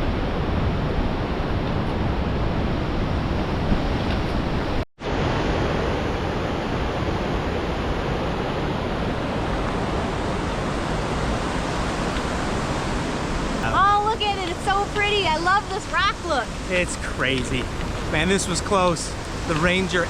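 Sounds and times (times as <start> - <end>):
waterfall roaring: 5.1 - 20.0.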